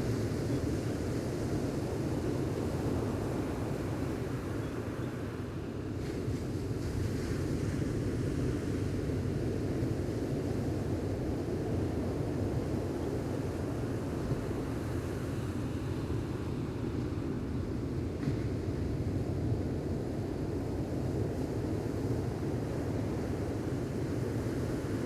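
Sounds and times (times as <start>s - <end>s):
gentle ocean waves on beach: 0.0s - 25.0s.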